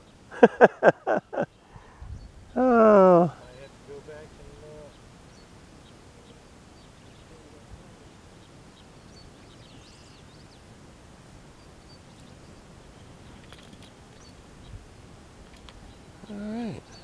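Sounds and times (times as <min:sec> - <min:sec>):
faint outdoor background noise: 0:00.0 - 0:17.0
faint bird chirps: 0:04.6 - 0:10.7.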